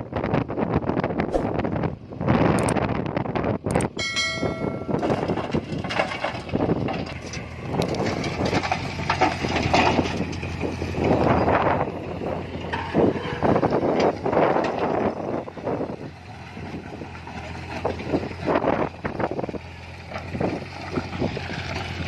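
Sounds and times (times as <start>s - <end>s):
wind buffeting microphone: 0.0s - 22.0s
heavy diesel machinery running: 3.2s - 22.0s
high whining tone: 4.0s - 5.3s.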